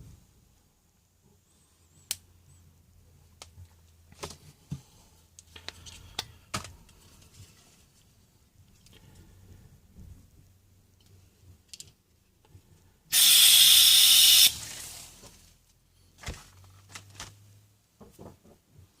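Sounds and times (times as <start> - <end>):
gas hissing burst: 13.1 - 15.2.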